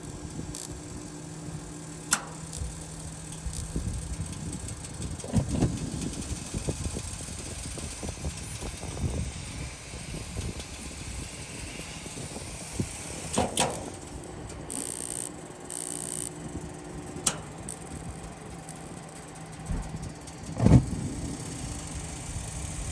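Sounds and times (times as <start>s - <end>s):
gas heater rumbling: 0.0s - 22.9s
sharp ringing click: 17.2s - 19.0s.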